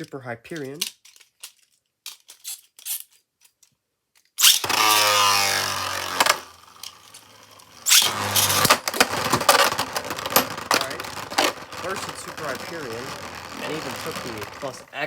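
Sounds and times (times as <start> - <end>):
sharp plastic clashes: 0.0 - 14.8
spinning tops knocking together: 4.4 - 14.8
spinning tops launched with whine: 4.4 - 14.8.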